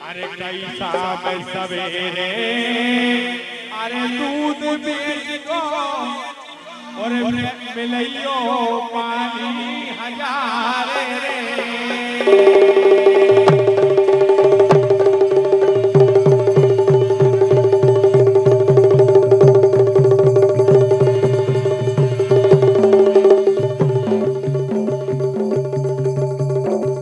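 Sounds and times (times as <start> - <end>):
fast drum beat: 12.2 - 27.0
held drone note: 12.2 - 27.0.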